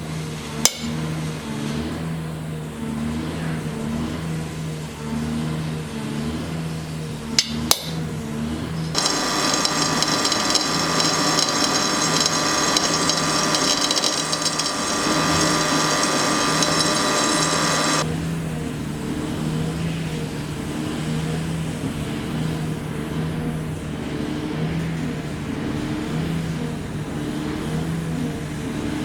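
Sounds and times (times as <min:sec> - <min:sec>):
grinder grinding steel: 0:09.0 - 0:18.1
power tool motor running: 0:09.0 - 0:18.1.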